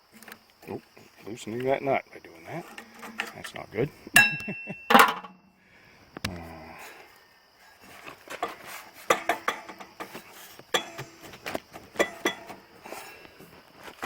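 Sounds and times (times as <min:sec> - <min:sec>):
metal tools clinking and clanking: 0:02.5 - 0:03.6, 0:04.2 - 0:05.4, 0:08.4 - 0:11.3, 0:12.0 - 0:13.2.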